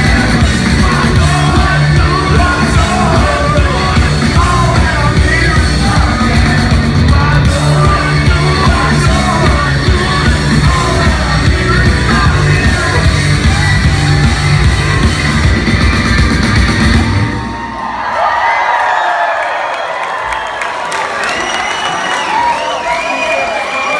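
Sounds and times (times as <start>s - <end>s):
person singing: 0.0s - 15.0s
rock band playing live: 0.0s - 17.6s.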